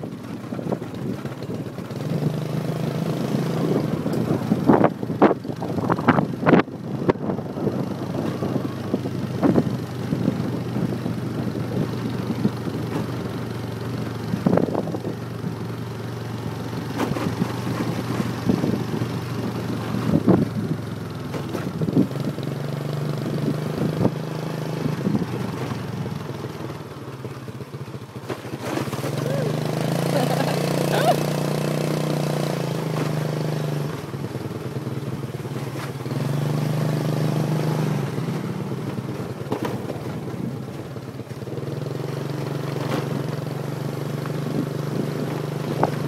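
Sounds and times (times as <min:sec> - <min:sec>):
motorbike engine running: 0:00.0 - 0:46.0.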